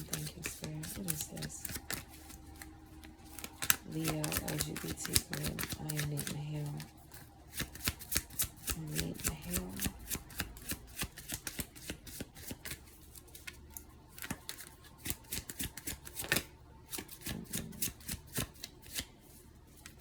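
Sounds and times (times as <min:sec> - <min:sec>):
cards being shuffled: 0:00.0 - 0:20.0
card snap: 0:03.3 - 0:06.8.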